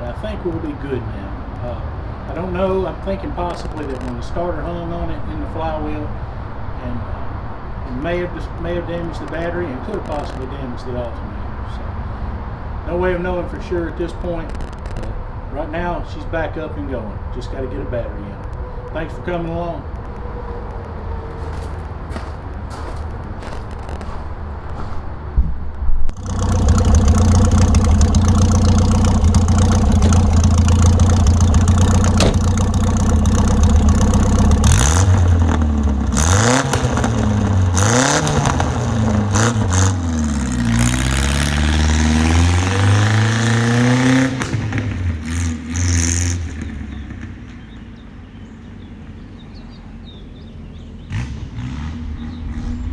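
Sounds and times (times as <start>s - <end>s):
car engine revving: 18.3s - 25.3s, 26.1s - 47.1s.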